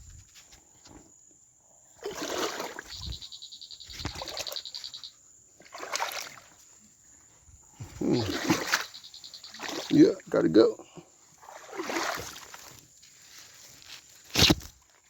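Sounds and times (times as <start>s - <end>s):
feet splashing through water: 2.0s - 3.0s, 5.6s - 6.6s, 8.2s - 10.0s, 11.4s - 12.8s.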